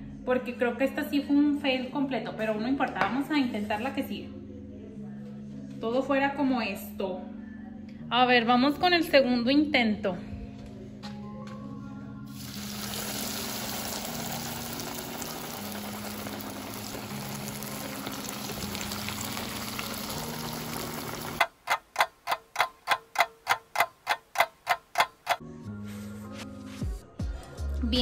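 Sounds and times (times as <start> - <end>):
corn dog sizzling in hot oil: 12.4 - 22.6
clock ticking: 21.4 - 25.4.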